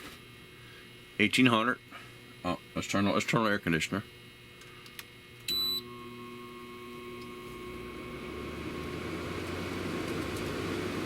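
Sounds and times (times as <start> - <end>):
air conditioner fan running: 0.0 - 11.0
steady electrical hum: 0.0 - 11.0
air conditioner beep: 5.4 - 11.0.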